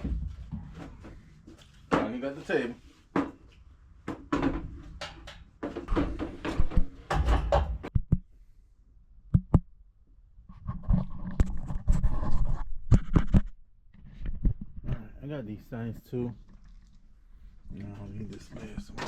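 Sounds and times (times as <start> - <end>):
household items knocking and scraping: 0.0 - 2.4, 3.1 - 8.2.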